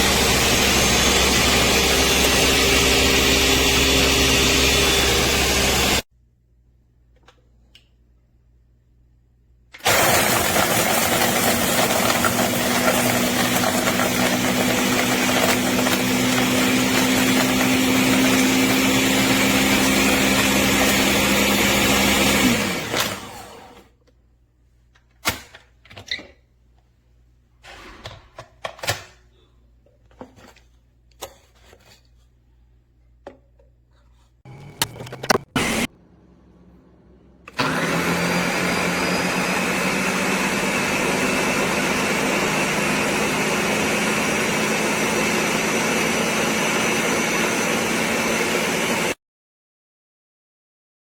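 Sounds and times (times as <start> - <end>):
blender running: 0.0 - 6.0, 9.8 - 23.9, 34.5 - 35.9, 37.5 - 49.2
clicks and knocks: 34.6 - 35.6.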